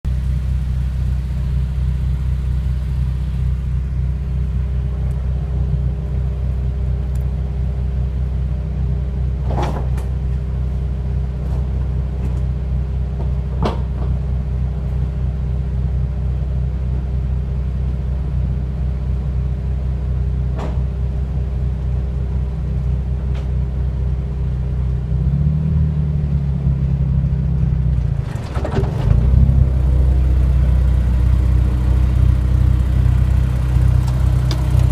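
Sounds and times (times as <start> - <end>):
car engine running: 0.1 - 34.9
rear differential clunking: 27.6 - 34.9.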